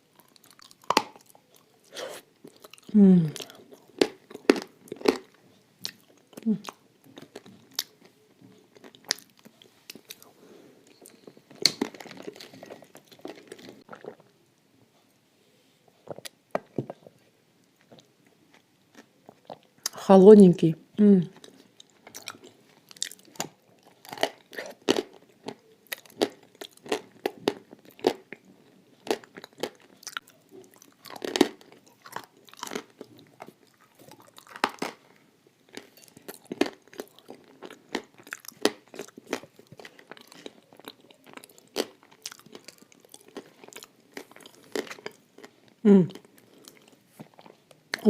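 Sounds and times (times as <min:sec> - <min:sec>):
clay being bitten and chewed: 0:00.1 - 0:10.3, 0:29.0 - 0:35.0, 0:35.7 - 0:48.0.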